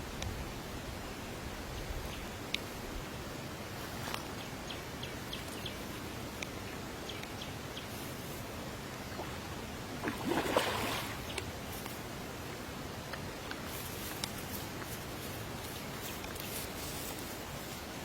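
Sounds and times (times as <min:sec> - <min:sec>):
water-side ambience: 0:00.0 - 0:18.0
rustling and splashing: 0:07.9 - 0:12.1, 0:13.4 - 0:18.0.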